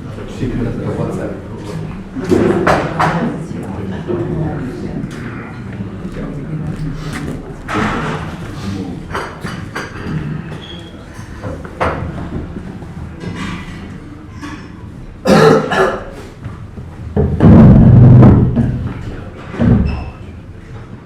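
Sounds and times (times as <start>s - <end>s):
murmur of voices: 0.0s - 21.0s
crockery and furniture knocks: 17.0s - 20.2s
low scraping thud: 17.2s - 18.9s.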